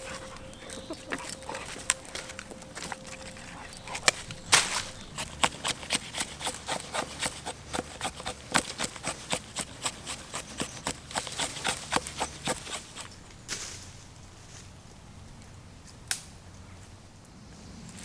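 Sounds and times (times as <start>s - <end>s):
dry sticks cracking and snapping: 0.0s - 13.8s, 16.0s - 16.3s.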